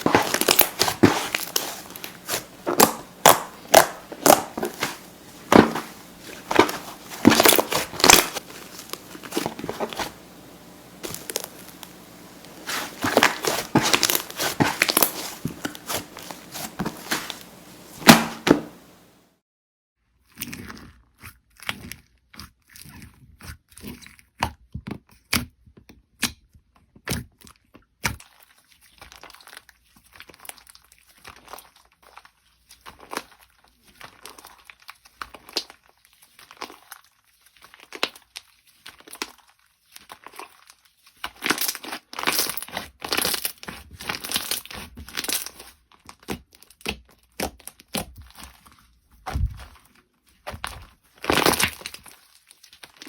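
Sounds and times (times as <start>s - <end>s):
slime crackling when squeezed: 0.0s - 19.0s.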